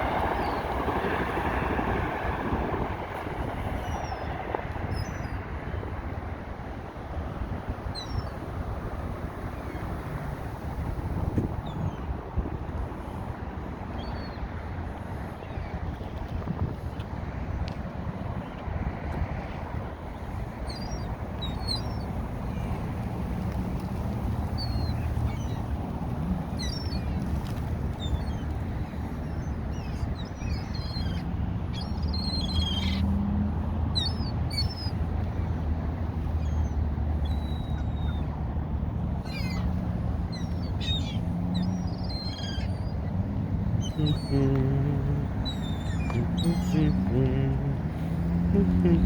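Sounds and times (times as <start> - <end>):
wind on microphone: 0.0 - 32.5, 42.7 - 49.0
birds chirping: 39.2 - 49.0
steady low rumble: 43.8 - 49.0.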